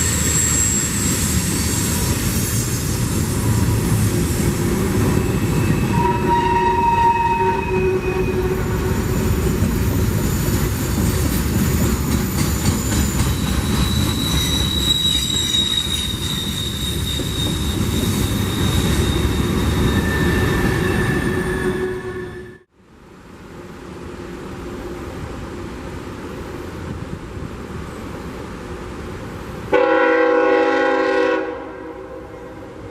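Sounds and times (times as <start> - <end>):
train wheels squealing: 0.0 - 22.7
freight train rumbling and rattling: 0.0 - 32.9.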